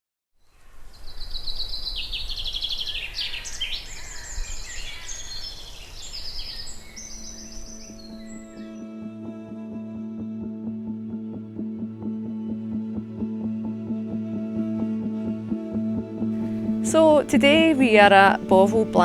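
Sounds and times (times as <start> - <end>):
songbirds singing in trills: 0.4 - 8.8
soft music: 6.6 - 19.0.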